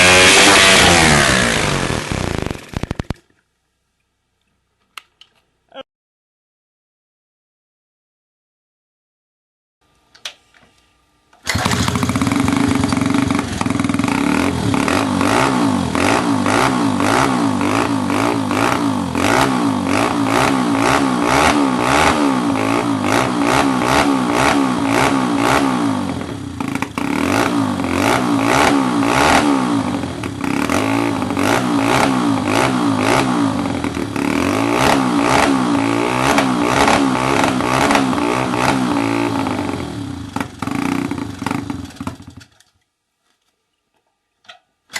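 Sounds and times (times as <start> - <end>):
small motorcycle engine revving: 0.0 - 3.2, 11.4 - 42.5.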